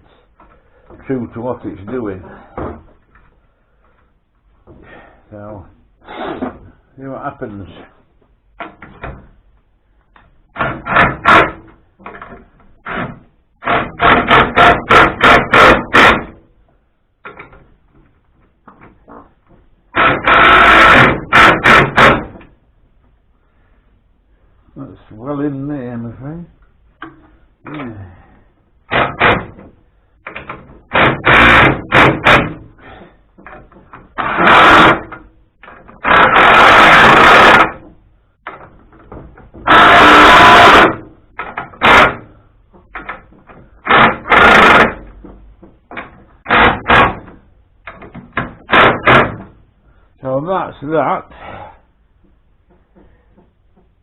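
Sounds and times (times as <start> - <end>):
power tool bursts: 19.9 - 22.3, 30.9 - 32.6, 34.1 - 35.2, 36.0 - 37.8, 39.6 - 42.3, 43.8 - 45.1.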